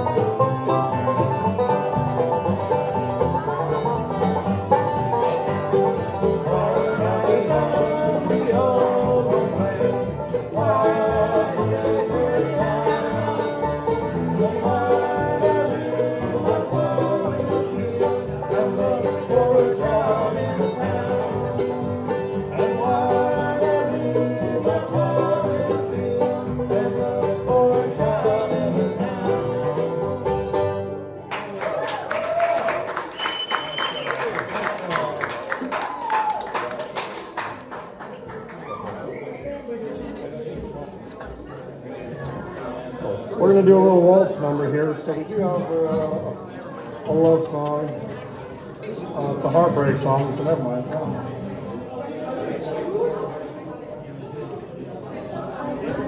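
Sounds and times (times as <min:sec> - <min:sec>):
banjo: 0:00.0 - 0:31.8, 0:43.3 - 0:53.2
bluegrass band playing: 0:00.0 - 0:31.8, 0:43.2 - 0:53.2.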